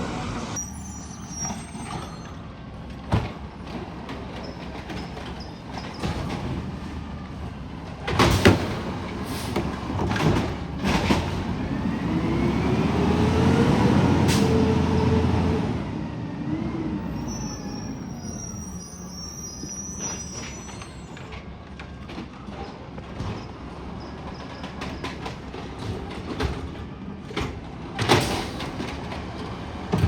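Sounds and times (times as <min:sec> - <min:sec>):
garbage truck bangs: 0:04.9 - 0:12.4, 0:25.1 - 0:30.0
truck engine revving: 0:08.6 - 0:17.2.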